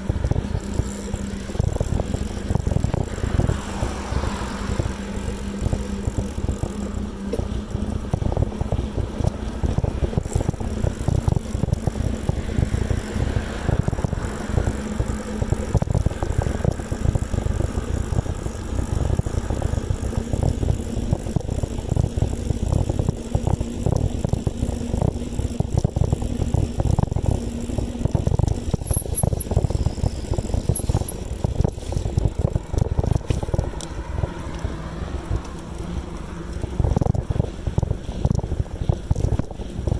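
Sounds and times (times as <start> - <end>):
wind buffeting microphone: 0.0 - 14.8
road noise: 0.0 - 39.9
light rattles: 28.7 - 29.8, 30.5 - 33.6.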